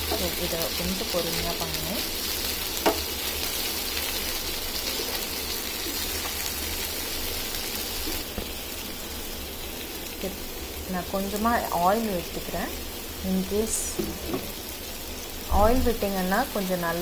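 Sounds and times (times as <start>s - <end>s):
food sizzling in a pan: 0.0s - 17.0s
spatula knock: 2.8s - 3.0s.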